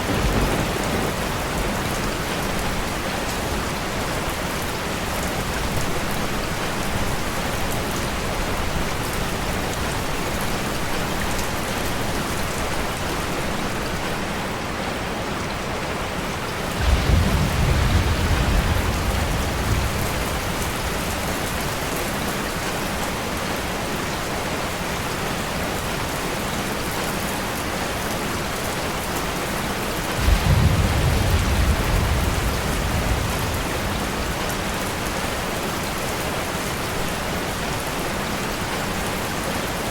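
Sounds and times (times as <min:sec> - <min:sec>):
low rolls of thunder: 0:00.0 - 0:03.0, 0:16.7 - 0:22.0, 0:30.1 - 0:35.4
steady rain: 0:00.0 - 0:39.9.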